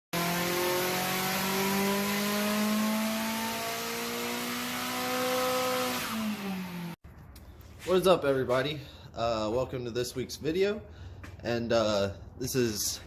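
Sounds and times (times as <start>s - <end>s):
car engine revving: 0.2s - 7.0s.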